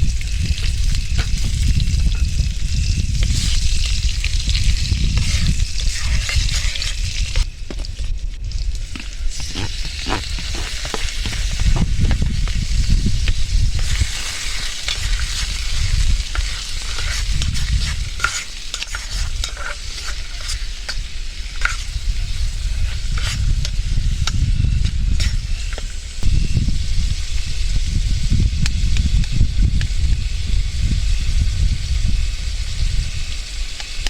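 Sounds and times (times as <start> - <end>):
low rumble: 0.0 - 18.3
food sizzling in a frying pan: 0.0 - 34.0
utensil scraping a pan: 3.2 - 7.4, 8.9 - 26.0.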